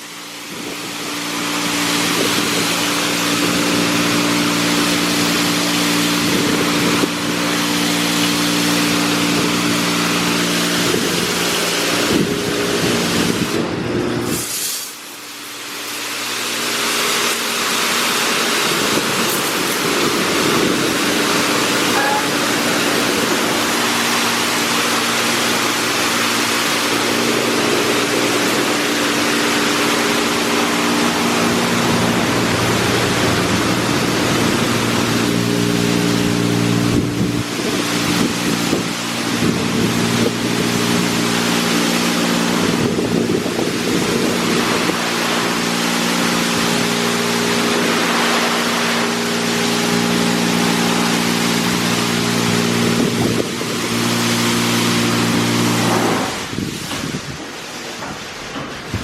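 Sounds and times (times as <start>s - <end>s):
steady machine hum: 0.0s - 14.4s, 15.1s - 59.0s
high-pressure water jets spraying: 0.0s - 59.0s.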